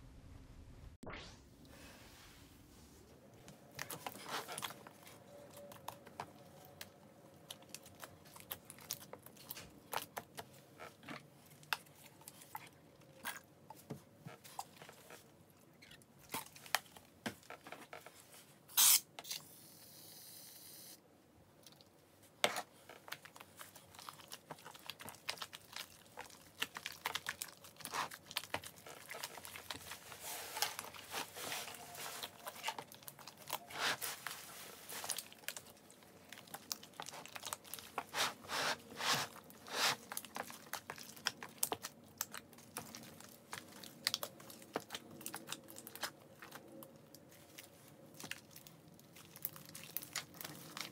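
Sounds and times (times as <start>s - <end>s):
hands squishing slime: 3.5s - 15.2s, 22.3s - 50.9s.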